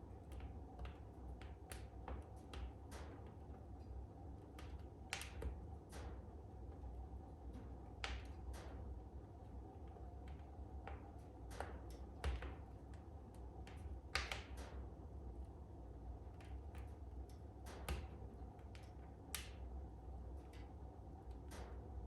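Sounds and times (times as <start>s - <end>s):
low rumble of burning fire: 0.0s - 22.0s
fire crackling and popping: 10.2s - 14.6s.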